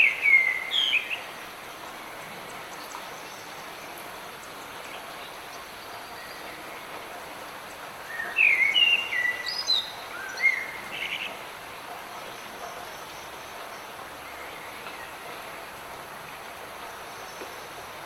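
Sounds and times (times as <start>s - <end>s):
steady rain hiss: 0.0s - 18.0s.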